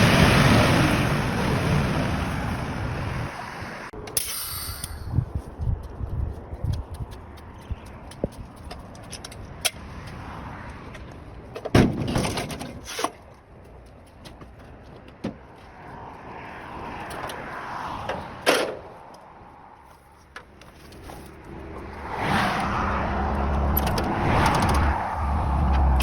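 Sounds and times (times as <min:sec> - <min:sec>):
background traffic noise: 0:00.0 - 0:26.0
knocks and clanks of tyre work: 0:10.9 - 0:13.3, 0:14.0 - 0:15.6, 0:18.0 - 0:19.0.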